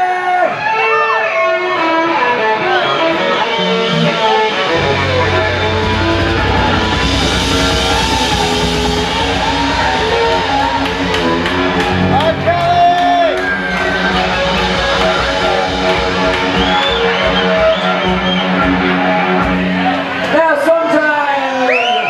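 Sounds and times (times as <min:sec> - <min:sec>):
melodic lead guitar line: 0:00.0 - 0:21.4
live rock band playing: 0:00.0 - 0:22.0
bass and drums: 0:03.2 - 0:20.4.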